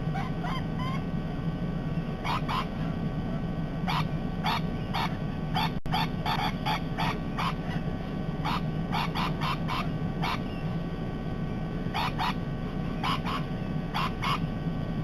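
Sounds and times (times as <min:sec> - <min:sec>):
parrots squawking: 0:00.1 - 0:01.1, 0:02.2 - 0:03.0, 0:03.9 - 0:10.7, 0:11.9 - 0:14.5.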